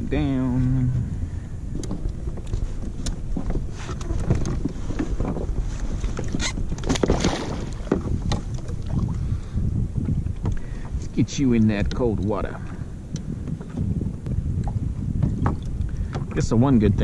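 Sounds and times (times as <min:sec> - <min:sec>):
wind rumble on microphone: 0:00.0 - 0:17.0
water slapping against kayak hull: 0:01.7 - 0:17.0
knocks and splashes: 0:01.8 - 0:09.2, 0:14.6 - 0:16.8.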